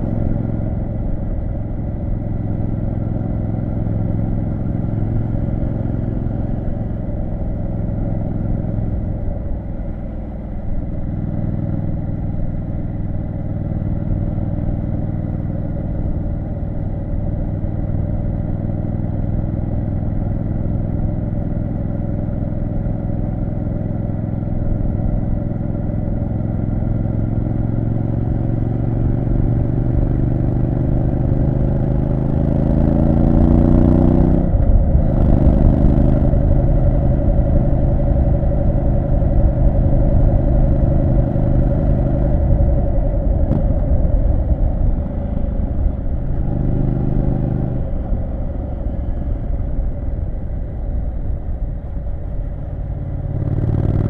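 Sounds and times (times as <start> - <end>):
motorcycle engine revving: 23.8 - 50.4, 52.5 - 54.0.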